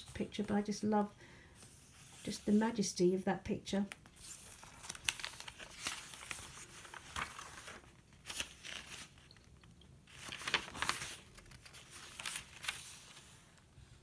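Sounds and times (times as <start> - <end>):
paper pages rustling: 3.9 - 13.6.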